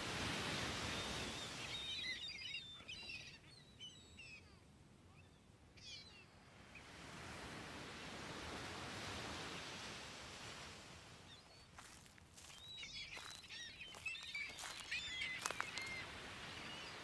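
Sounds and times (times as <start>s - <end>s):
small bird chirping: 12.4s - 16.0s.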